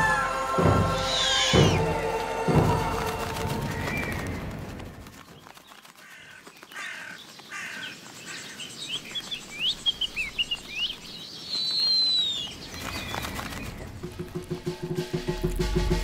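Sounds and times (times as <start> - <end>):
long falling bird whistle: 0.0 - 5.6, 8.9 - 14.2
harsh bird calls: 0.0 - 14.8
bird chirps: 1.0 - 1.9, 6.5 - 14.6.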